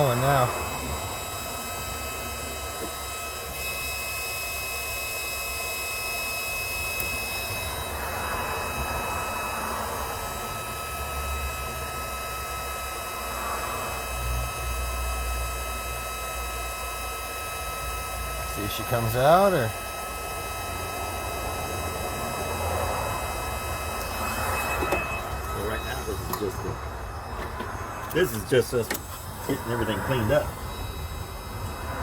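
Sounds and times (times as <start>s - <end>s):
gas torch flame roaring: 0.0s - 32.0s.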